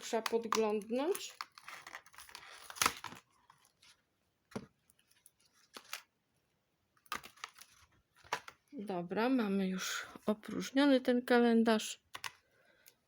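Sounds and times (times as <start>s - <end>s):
packaging rustling: 0.1s - 4.0s, 7.0s - 8.6s.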